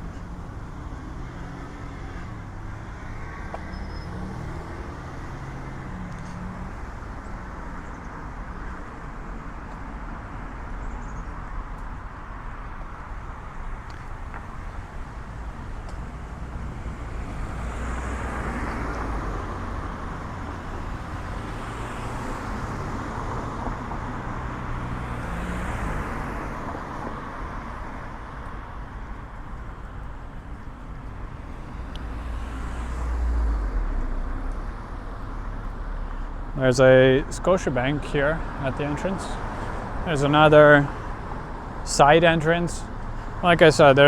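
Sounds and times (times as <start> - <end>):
cars passing: 0.0 - 44.0.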